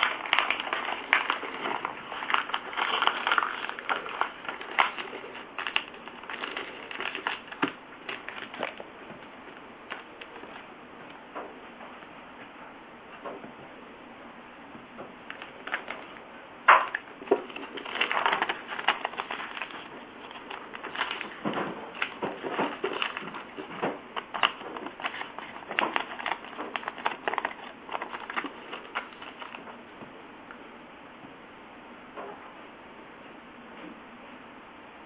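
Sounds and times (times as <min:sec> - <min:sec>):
paper crackling and rustling: 0:00.0 - 0:10.7, 0:15.3 - 0:16.2, 0:16.8 - 0:29.8.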